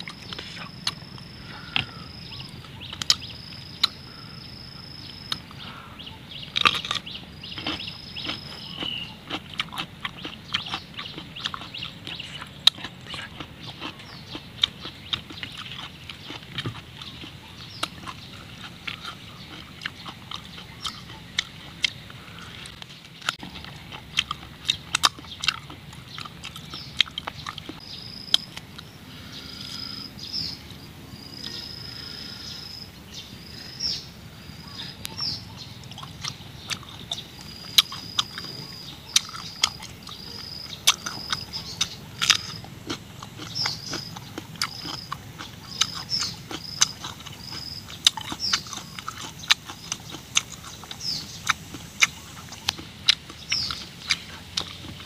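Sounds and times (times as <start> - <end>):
high chirping call: 0.0 - 16.4
crunching and chewing cucumber: 0.0 - 33.7, 34.6 - 55.0.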